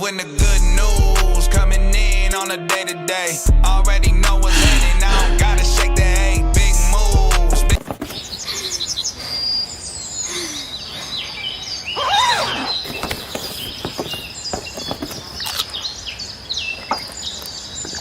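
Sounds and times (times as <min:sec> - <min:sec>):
soft outdoor background: 0:00.0 - 0:18.0
birds chirping and trilling: 0:07.8 - 0:18.0.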